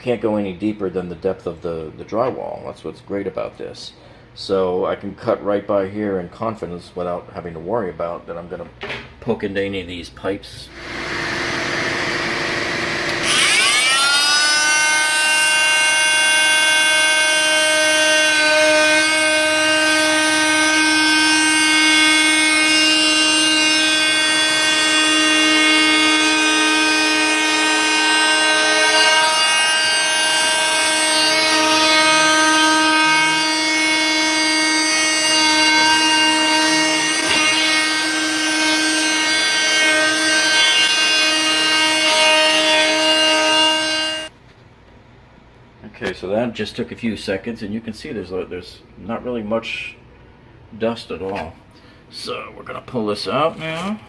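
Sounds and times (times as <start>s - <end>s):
shop vacuum running: 10.7s - 44.3s
oscillating multi-tool whining: 13.0s - 44.3s.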